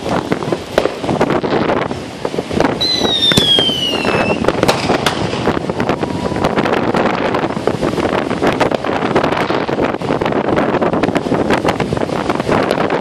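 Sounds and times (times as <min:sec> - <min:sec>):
fireworks popping and banging: 0:00.0 - 0:13.0
firework whistle falling in pitch: 0:02.8 - 0:04.6.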